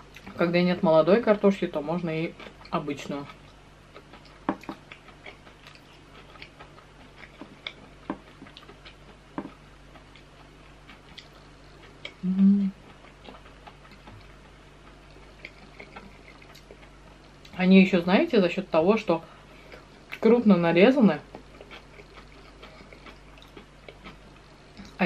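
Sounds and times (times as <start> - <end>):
closed-mouth hum: 0.0 - 25.0
person chewing with mouth clicks: 2.3 - 17.6, 21.2 - 25.0.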